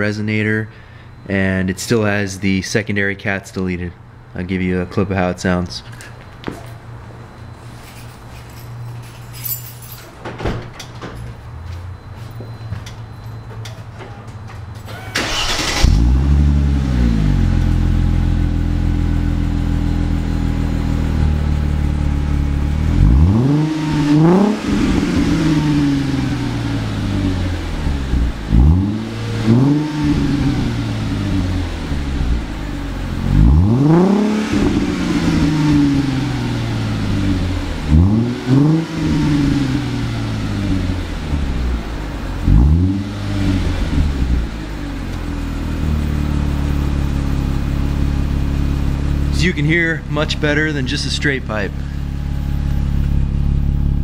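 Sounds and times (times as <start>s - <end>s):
car engine starting and idling: 10.7s - 54.0s
car engine revving: 15.2s - 54.0s.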